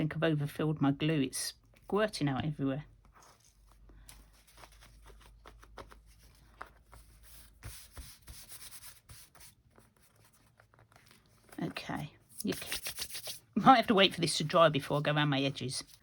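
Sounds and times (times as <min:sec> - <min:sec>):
paper crackles and taps: 0:03.0 - 0:15.0
paper rubbing: 0:03.0 - 0:16.0.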